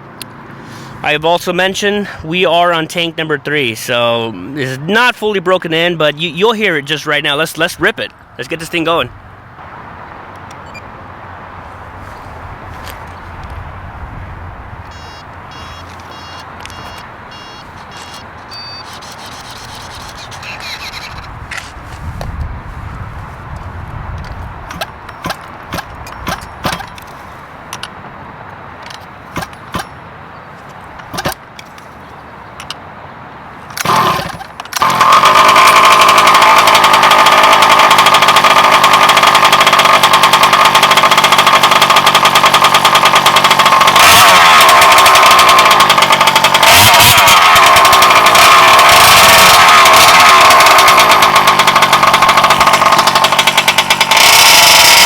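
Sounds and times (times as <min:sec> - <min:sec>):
sharp clicks: 0:10.3 - 0:10.9, 0:14.8 - 0:22.3, 0:33.7 - 0:55.0
two-stroke engine running and revving: 0:14.9 - 0:22.0, 0:24.3 - 0:27.0, 0:33.8 - 0:55.0.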